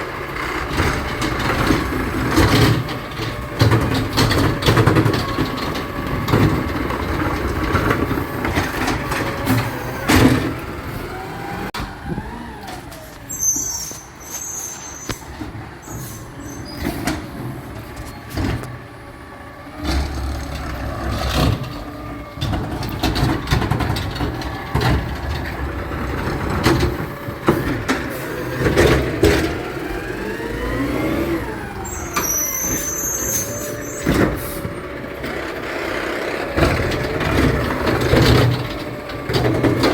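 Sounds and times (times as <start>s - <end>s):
garbage truck engine running: 0.0s - 39.9s
air brake hisses: 13.2s - 15.2s, 15.8s - 17.2s.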